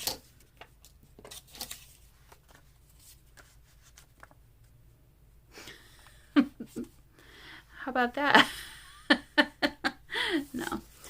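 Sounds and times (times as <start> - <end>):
paper rustling and tapping: 0.0 - 4.4.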